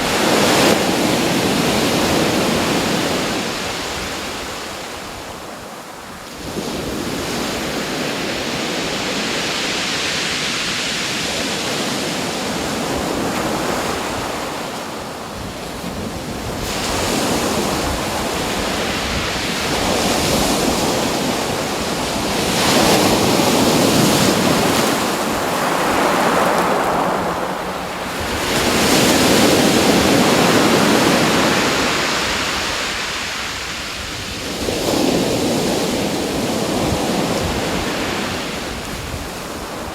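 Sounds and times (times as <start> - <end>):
surf washing ashore: 0.0 - 39.9.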